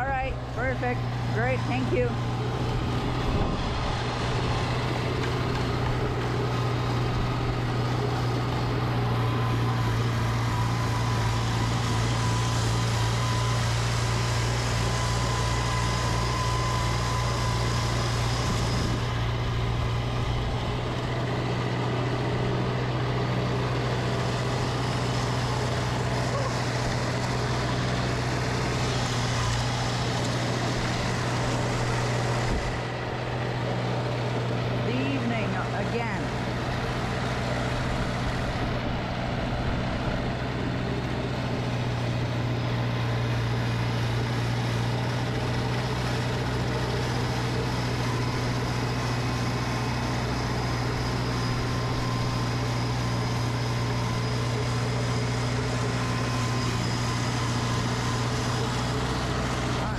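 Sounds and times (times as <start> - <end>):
snowblower engine running: 0.0 - 59.9.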